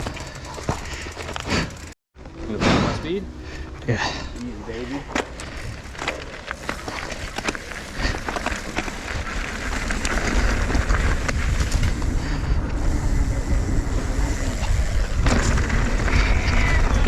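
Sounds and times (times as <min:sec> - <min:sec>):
bike tyres and frame rattling: 0:00.0 - 0:17.0
wind rushing over microphone: 0:07.8 - 0:17.0.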